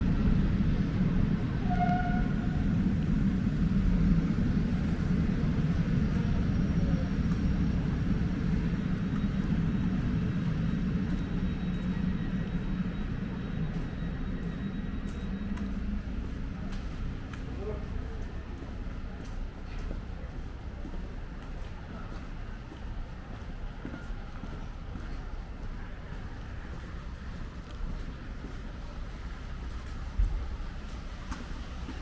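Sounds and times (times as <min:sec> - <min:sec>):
train rumbling: 0:00.0 - 0:32.0.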